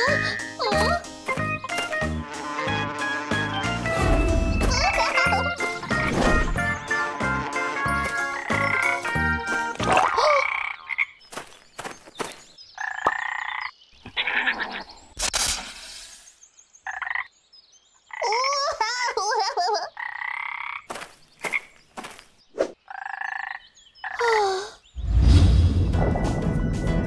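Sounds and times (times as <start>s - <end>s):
frogs croaking and chirping: 9.9s - 14.8s, 16.8s - 18.5s, 19.9s - 22.2s, 22.8s - 24.2s.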